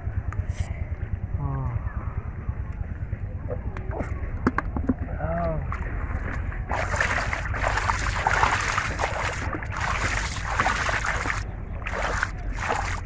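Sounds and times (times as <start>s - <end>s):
steady low rumble: 0.0s - 13.0s
water splashing and sloshing: 3.8s - 13.0s.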